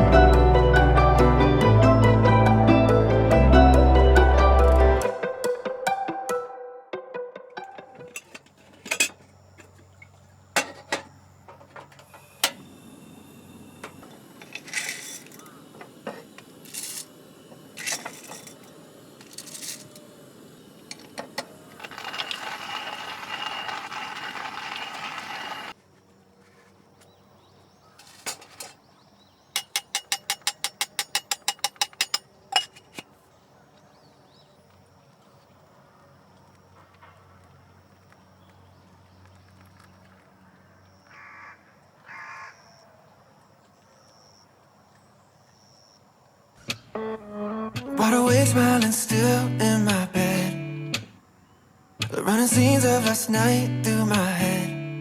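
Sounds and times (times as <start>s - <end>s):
dishes clinking: 8.0s - 9.7s, 10.6s - 12.6s, 29.6s - 33.0s
steady hissing: 8.1s - 25.8s.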